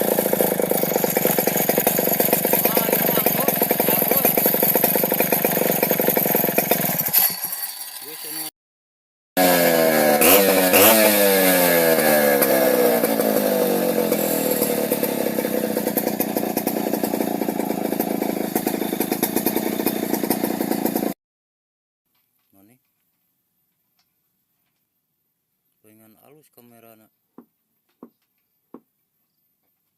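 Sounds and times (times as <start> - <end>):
chainsaw engine revving: 0.0 - 8.5, 9.4 - 21.2.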